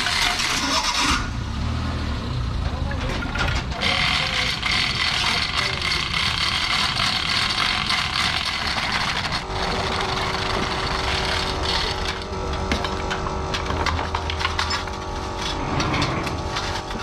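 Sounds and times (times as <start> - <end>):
engine running: 0.0 - 17.0
steady hum: 3.9 - 17.0.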